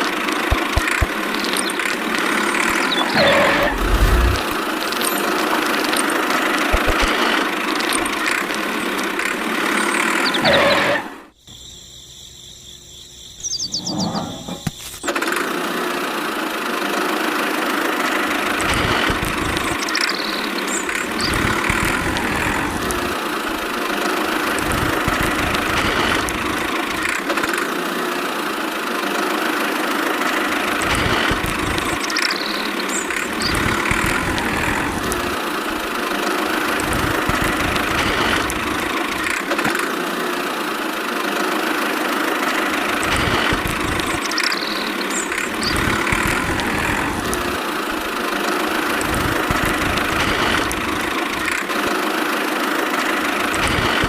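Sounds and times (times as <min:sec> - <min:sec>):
engine idling: 0:00.0 - 0:10.5, 0:15.2 - 0:54.0.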